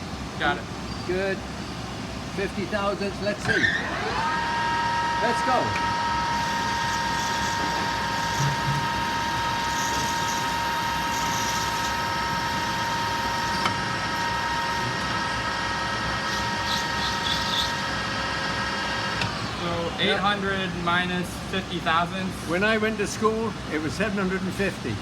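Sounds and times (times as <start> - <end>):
metal lathe whining: 3.4 - 20.8.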